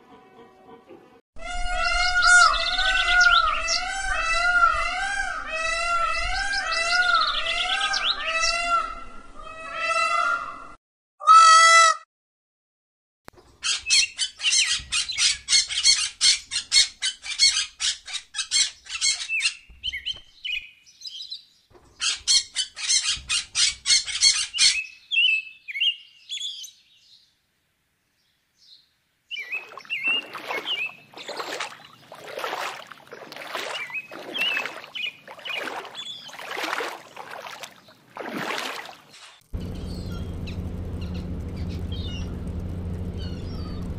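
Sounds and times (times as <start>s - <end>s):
peacock calling: 1.4s - 12.0s, 29.3s - 38.0s, 38.7s - 43.9s
faint bird chirps: 29.3s - 32.2s, 33.6s - 36.6s, 39.2s - 42.4s, 43.0s - 43.9s
bird fast harsh calls: 29.3s - 42.3s
water splashing: 29.4s - 43.9s.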